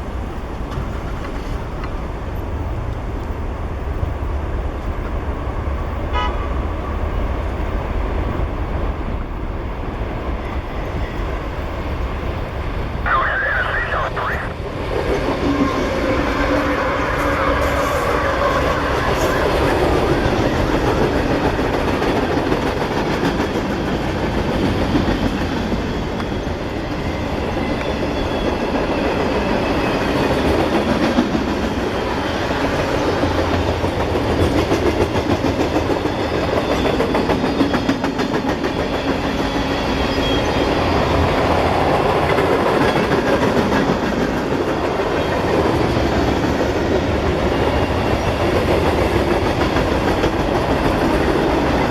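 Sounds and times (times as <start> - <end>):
freight train cars rolling past: 13.9 - 51.9.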